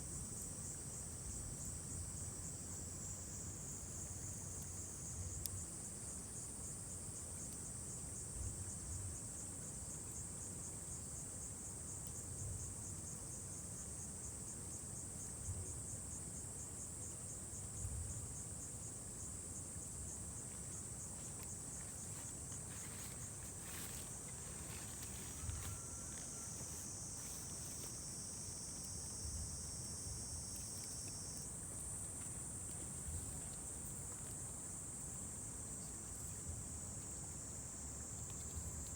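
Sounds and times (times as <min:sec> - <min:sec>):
lower insect trill: 0:16.4 - 0:38.9
insects trilling: 0:19.6 - 0:38.9.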